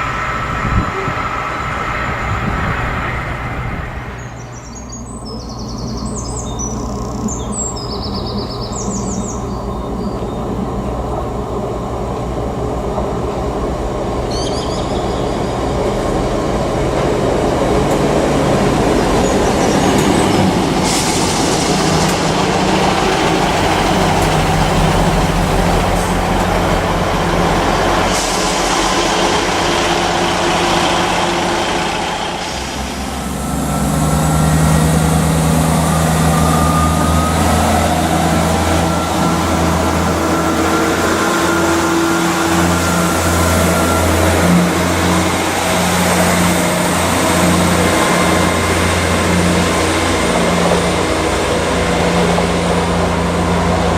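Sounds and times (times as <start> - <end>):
birds chirping: 0.0 - 11.8, 13.4 - 16.0, 18.6 - 44.5
low engine hum: 0.0 - 53.9
train passing: 0.0 - 53.9.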